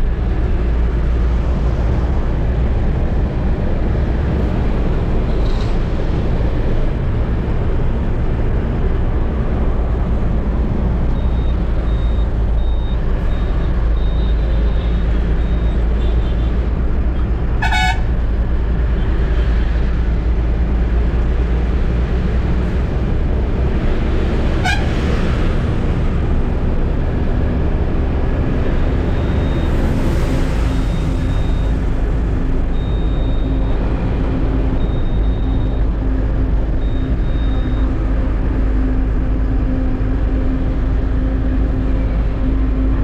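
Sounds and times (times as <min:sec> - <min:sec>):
faint high beeps: 0:11.1 - 0:16.4, 0:30.6 - 0:31.8
truck horn honks: 0:17.6 - 0:18.2, 0:24.6 - 0:25.0
truck diesel engine running: 0:25.4 - 0:43.0.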